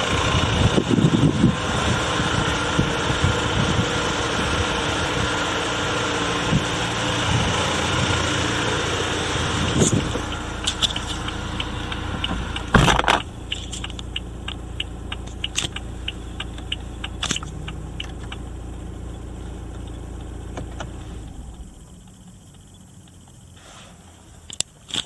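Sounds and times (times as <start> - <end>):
loud engine burst: 0.0 - 22.0
diesel engine idling: 0.0 - 24.7.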